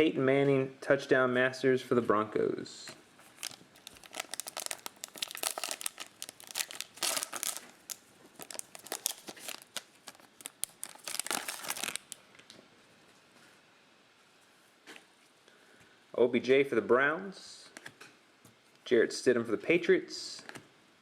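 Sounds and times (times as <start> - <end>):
foil wrapper tearing and crinkling: 3.3 - 12.2.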